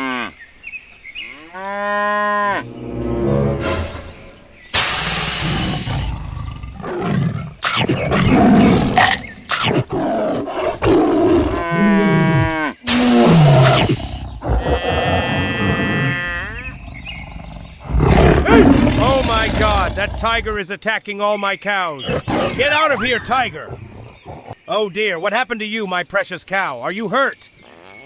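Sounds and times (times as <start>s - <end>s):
tiger roaring and growling: 2.9s - 20.6s.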